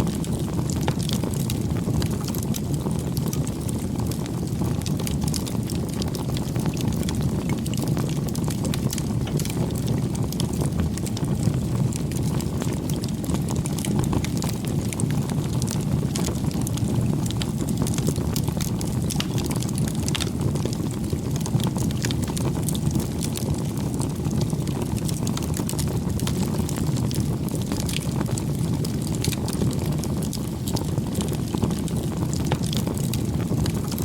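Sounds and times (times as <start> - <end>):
rumble of flames: 0.0 - 34.0
wood crackling and popping: 0.0 - 34.0.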